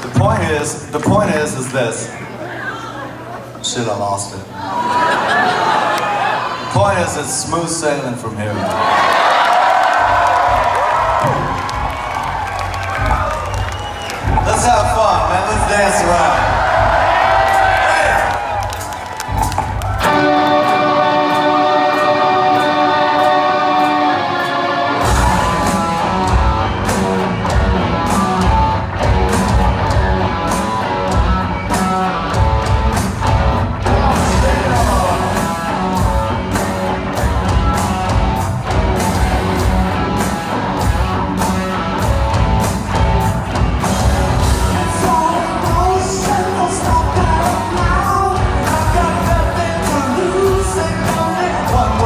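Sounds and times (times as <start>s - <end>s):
live rock band playing: 10.1s - 52.0s
guitar riff: 19.3s - 52.0s
person singing: 33.8s - 36.0s, 44.6s - 52.0s.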